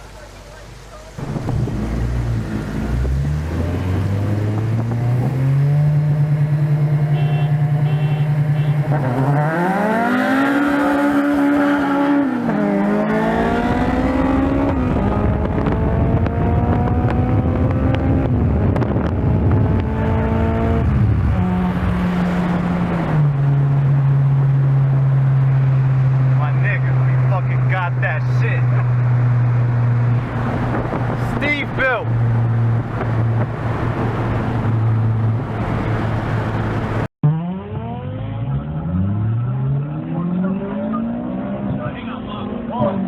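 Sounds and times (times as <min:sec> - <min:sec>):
car engine accelerating hard: 0:00.2 - 0:43.0.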